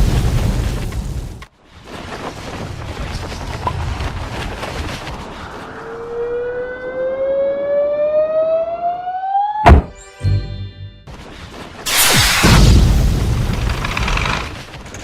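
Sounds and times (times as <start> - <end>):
rising whistling tone: 5.5 - 9.7
low thud: 9.6 - 9.9
sharp loud impact: 9.6 - 9.9.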